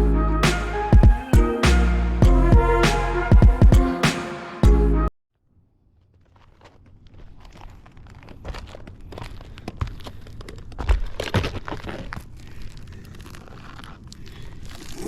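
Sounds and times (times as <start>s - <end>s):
roof shingles crackling and scraping: 5.9s - 15.0s.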